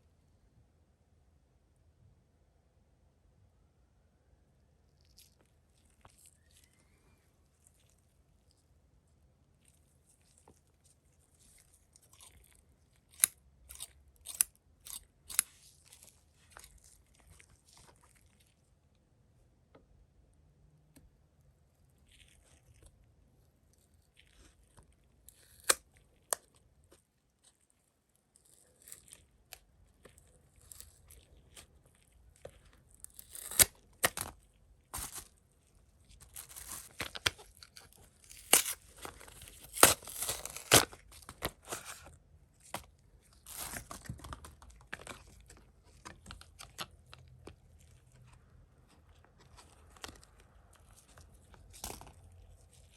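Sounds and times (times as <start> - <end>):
packaging crinkling and tearing: 5.0 - 7.0, 24.0 - 26.6, 28.4 - 52.9.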